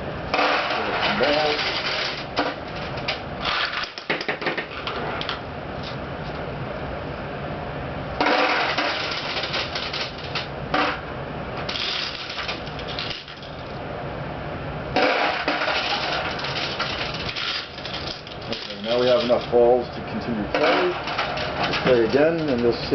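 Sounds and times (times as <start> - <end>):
metal balls clattering into hopper: 0.4 - 2.6, 8.2 - 11.0, 11.7 - 13.7, 15.0 - 19.6, 20.6 - 22.8.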